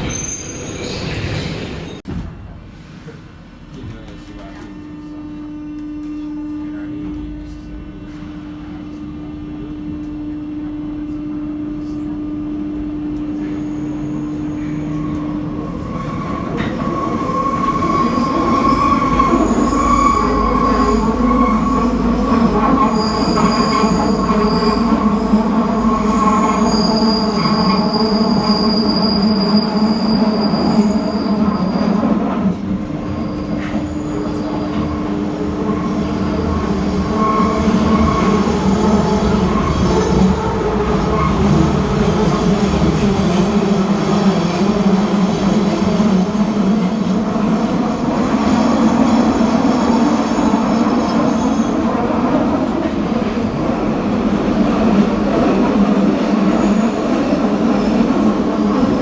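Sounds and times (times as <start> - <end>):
train wheels squealing: 0.0 - 2.0, 13.4 - 32.4, 33.0 - 40.4
train running on rails: 0.0 - 59.0.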